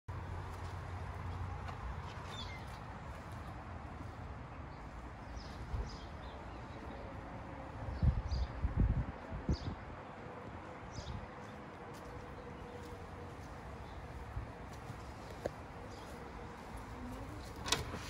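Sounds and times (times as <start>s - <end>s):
wind rumble on microphone: 5.4s - 11.4s, 13.8s - 18.0s.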